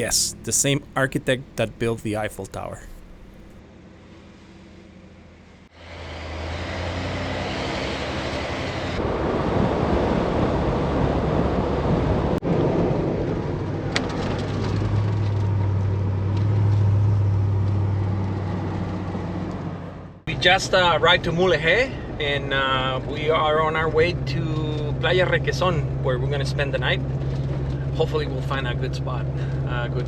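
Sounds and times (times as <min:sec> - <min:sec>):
vehicle engine hum: 0:00.0 - 0:03.6.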